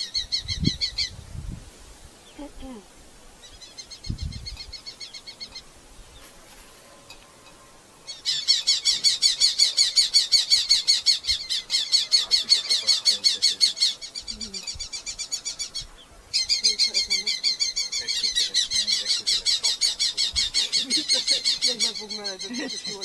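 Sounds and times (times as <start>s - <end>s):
falcon chattering calls: 8.1s - 23.0s.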